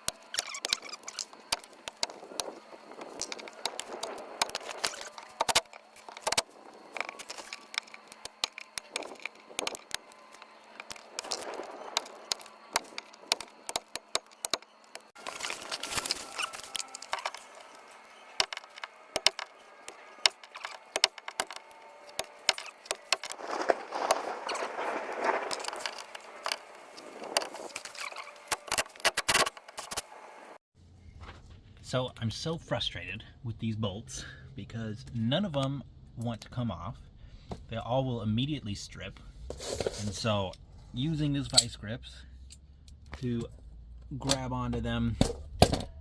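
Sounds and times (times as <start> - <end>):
hand tools clicking and knocking: 18.4 - 23.4.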